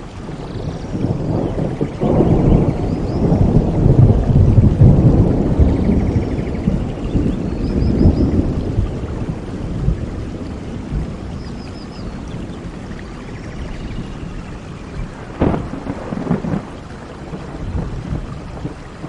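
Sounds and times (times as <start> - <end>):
rolling thunder: 0.0 - 19.0
steady rain: 0.0 - 19.0
sharp thunder cracks: 0.6 - 10.1, 15.1 - 19.0.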